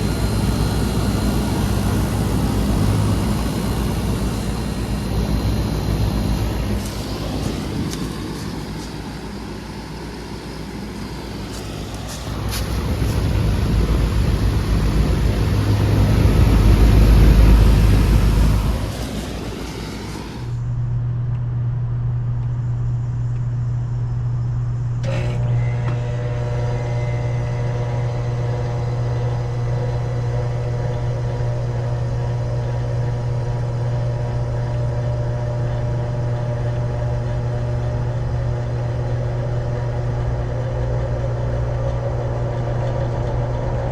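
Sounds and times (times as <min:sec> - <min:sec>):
loud rushing noise with rumble: 0:00.0 - 0:21.0
air conditioner humming: 0:00.0 - 0:43.9
fan motor whirring: 0:00.0 - 0:43.9.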